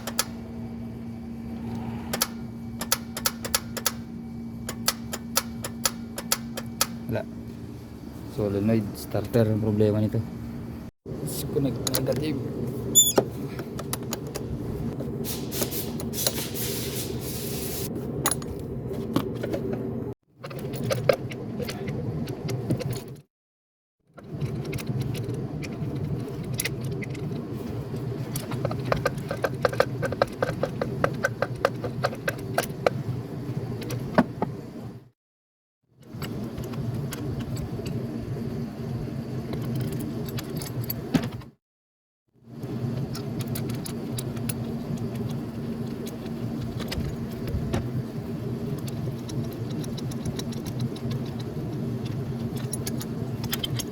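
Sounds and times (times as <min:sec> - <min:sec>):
steady low hum: 0:00.0 - 0:16.2
low mechanical hum: 0:00.0 - 0:23.3, 0:24.1 - 0:35.2, 0:36.0 - 0:41.6, 0:42.4 - 0:53.9.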